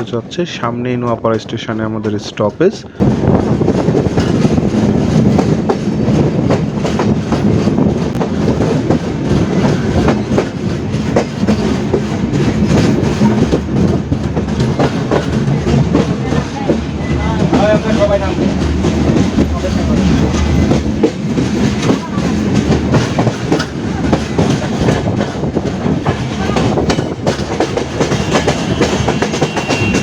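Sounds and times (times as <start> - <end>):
train rumbling: 0.0 - 30.0
wheels clattering over rail joints: 3.4 - 30.0.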